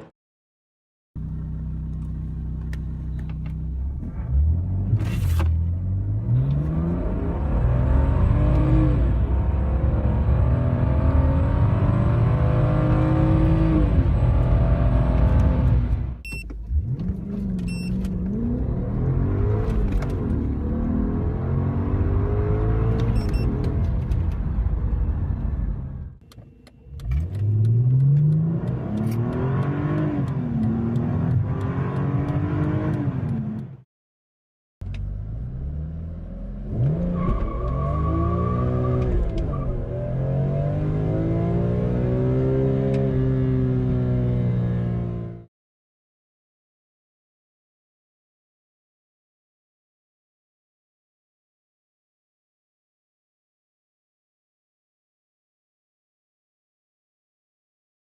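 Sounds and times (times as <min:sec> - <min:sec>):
car engines accelerating hard: 0:05.8 - 0:16.1, 0:16.7 - 0:25.9, 0:27.0 - 0:33.8
short steady beep: 0:16.2 - 0:16.4.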